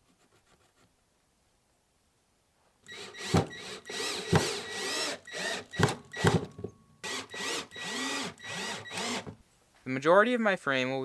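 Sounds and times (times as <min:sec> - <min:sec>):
power drill whining: 0:02.9 - 0:09.4
sharp knocks: 0:03.2 - 0:03.6, 0:04.2 - 0:04.7, 0:05.8 - 0:06.8.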